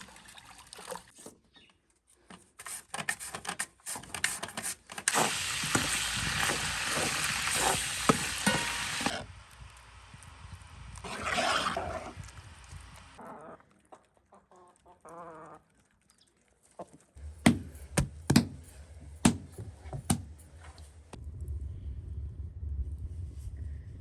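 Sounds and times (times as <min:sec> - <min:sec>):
low hum: 0:17.2 - 0:24.0
sharp knocks: 0:17.4 - 0:20.4.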